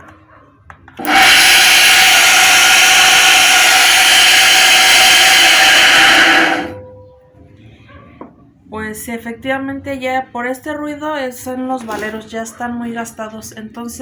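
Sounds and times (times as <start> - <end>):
water pump motor running: 1.0 - 6.8.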